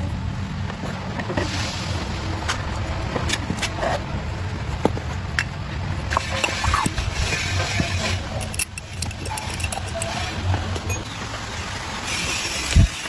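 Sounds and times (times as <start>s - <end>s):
engine rumbling: 0.0s - 13.0s
sharp clicks and knocks: 4.8s - 11.4s.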